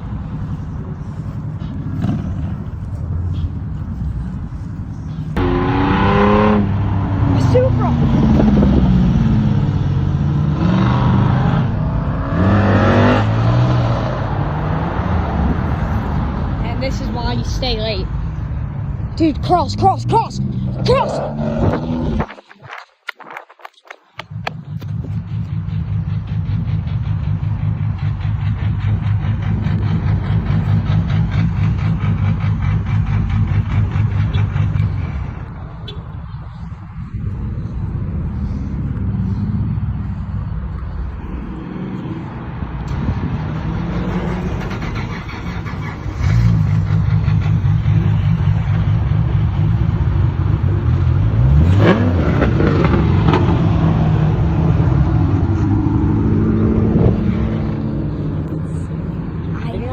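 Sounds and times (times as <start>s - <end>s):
car engine revving: 1.0s - 16.4s, 19.2s - 22.5s, 24.2s - 35.8s, 36.5s - 59.9s
car engine running: 24.2s - 35.8s.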